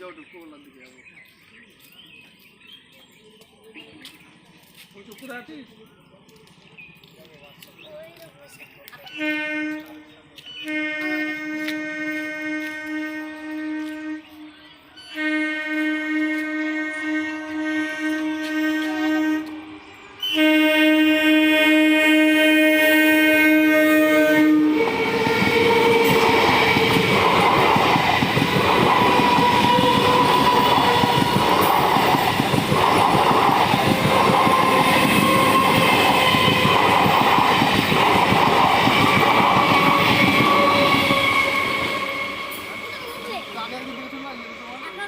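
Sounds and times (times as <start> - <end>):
train horn blast: 9.1 - 27.3, 29.0 - 31.7, 39.5 - 43.8
train wheels rattling on rail: 17.3 - 45.0.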